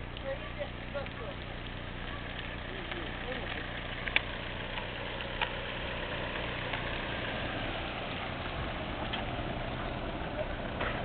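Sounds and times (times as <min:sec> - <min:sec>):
car engine idling: 0:00.0 - 0:11.0
faint clicks: 0:01.0 - 0:05.6.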